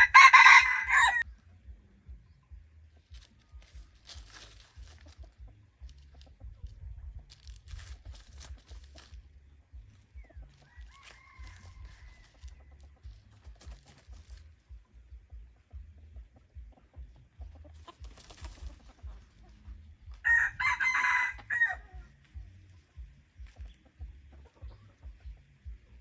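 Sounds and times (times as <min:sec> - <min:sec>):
rooster clucking: 0:00.0 - 0:01.5, 0:09.8 - 0:26.0
wind rumble on microphone: 0:05.2 - 0:10.5.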